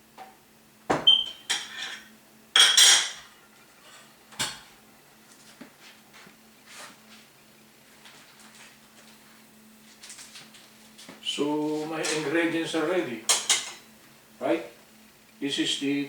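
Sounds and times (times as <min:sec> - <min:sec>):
dishes and utensils clattering: 0:01.4 - 0:04.6, 0:13.3 - 0:13.8.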